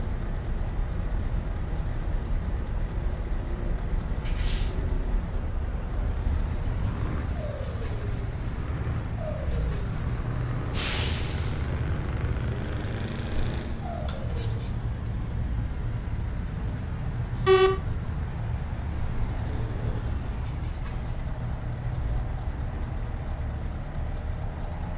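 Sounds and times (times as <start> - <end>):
truck diesel engine droning: 0.0 - 24.9
compressed air hiss: 10.8 - 11.6
high horn toot: 17.4 - 17.9.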